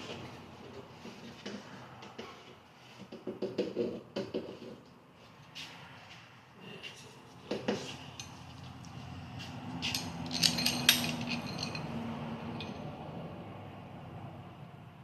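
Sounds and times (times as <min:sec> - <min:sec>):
metal parts clinking: 0:09.8 - 0:12.8.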